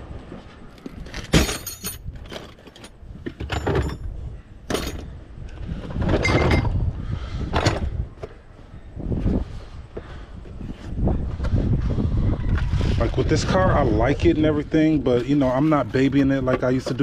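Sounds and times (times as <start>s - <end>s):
sharp metal clanks: 1.3s - 2.1s.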